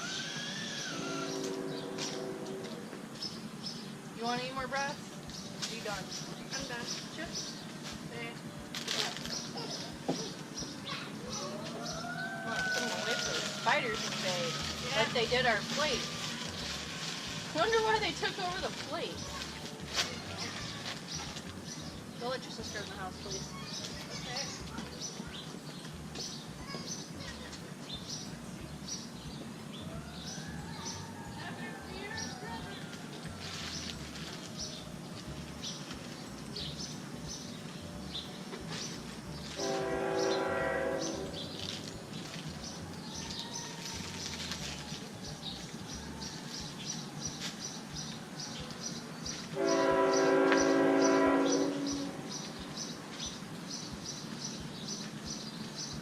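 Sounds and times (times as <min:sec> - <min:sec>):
train horn blasts: 0:00.9 - 0:03.0, 0:39.5 - 0:41.6, 0:49.6 - 0:52.3
rhythmic high chirping: 0:12.8 - 0:50.9.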